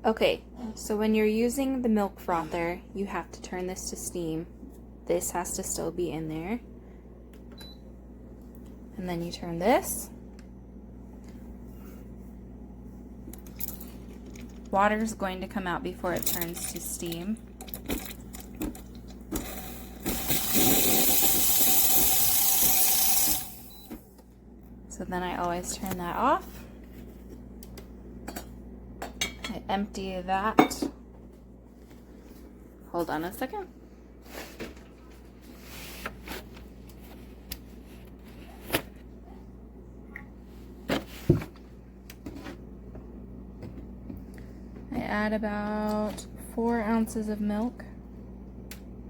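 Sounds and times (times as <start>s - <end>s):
steady low hum: 0.0s - 49.0s
steam wand sputtering: 19.4s - 23.5s
kitchen items knocking: 30.5s - 31.0s.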